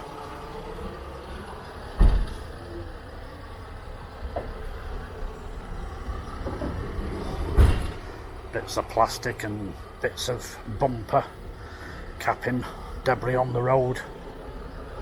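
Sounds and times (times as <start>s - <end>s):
street traffic: 0.0s - 15.0s
loud thump: 2.0s - 2.5s, 7.5s - 8.1s.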